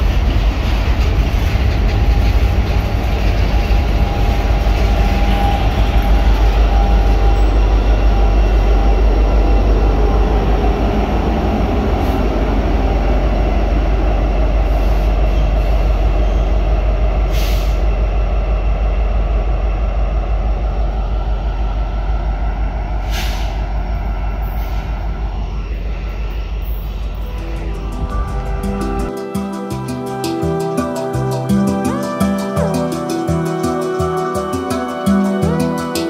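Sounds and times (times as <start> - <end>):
freight train rumbling past: 0.0 - 36.0
locomotive engine drone: 0.0 - 36.0.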